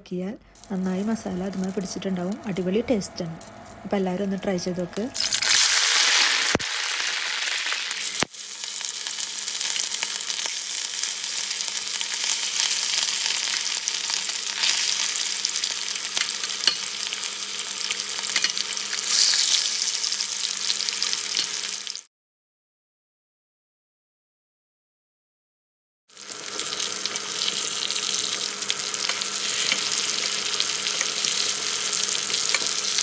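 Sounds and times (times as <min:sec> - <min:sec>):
fish frying in hot oil: 0:05.2 - 0:22.1, 0:26.1 - 0:33.0.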